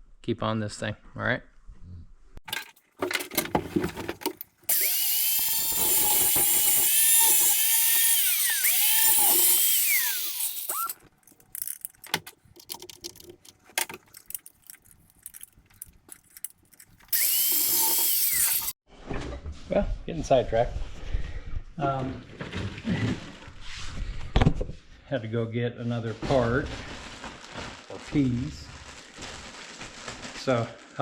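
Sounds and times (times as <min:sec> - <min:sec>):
power tool grinding metal: 0:04.7 - 0:11.0, 0:17.1 - 0:18.8.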